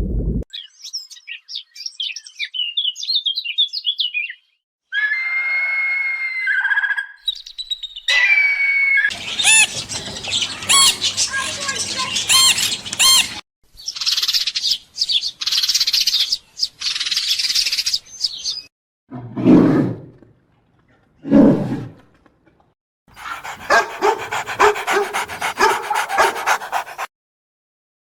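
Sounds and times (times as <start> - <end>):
harsh high animal calls: 8.1 - 13.4, 23.2 - 27.1
rapid pulsing animal calls: 9.1 - 13.4, 23.2 - 27.1.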